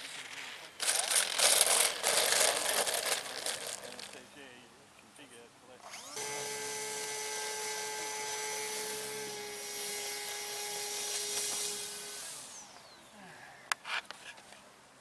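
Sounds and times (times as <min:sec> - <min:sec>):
small electric motor whining: 0:00.8 - 0:04.2, 0:05.8 - 0:13.0.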